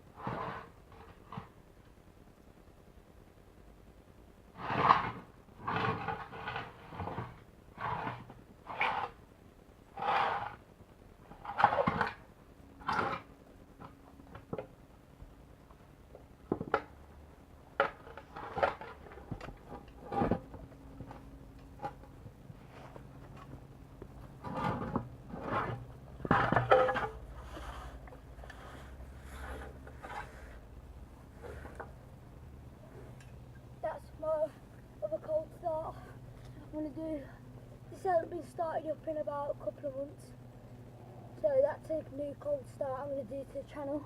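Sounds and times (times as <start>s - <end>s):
faint low hum: 0.0s - 44.0s
objects being handled and set down: 24.4s - 28.2s.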